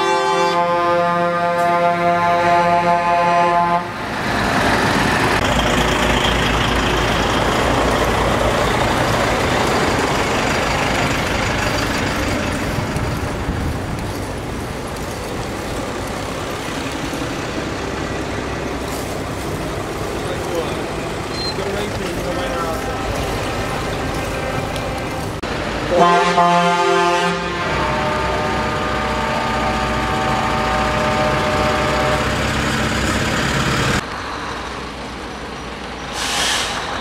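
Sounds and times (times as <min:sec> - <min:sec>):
truck air horn blast: 0:00.0 - 0:04.0, 0:25.9 - 0:32.4, 0:36.2 - 0:36.9
heavy trucks driving past: 0:00.0 - 0:37.0.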